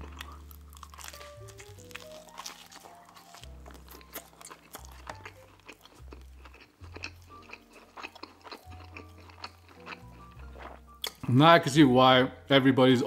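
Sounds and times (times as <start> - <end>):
chewing crunchy pizza crust: 0.0 - 11.3
soft background music: 0.0 - 13.0
wet mouth clicks: 7.5 - 11.3.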